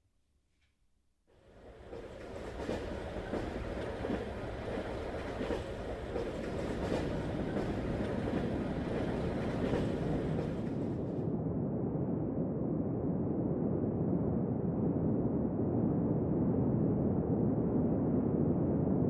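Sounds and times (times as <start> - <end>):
train running along rails: 1.3 - 11.3.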